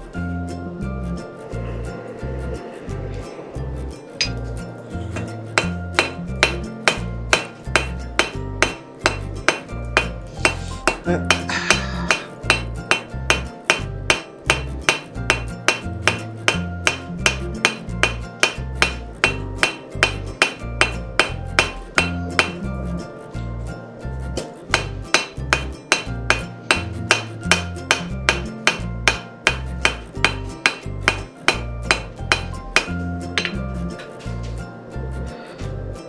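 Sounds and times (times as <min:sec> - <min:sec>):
background music with bass: 0:00.0 - 0:36.0
hammer striking steel on anvil: 0:05.2 - 0:22.6, 0:24.4 - 0:34.1.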